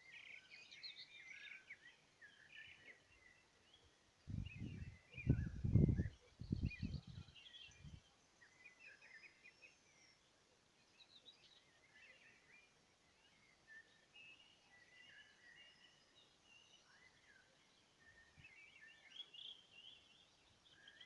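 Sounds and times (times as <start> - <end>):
songbirds chirping: 0.0 - 21.0.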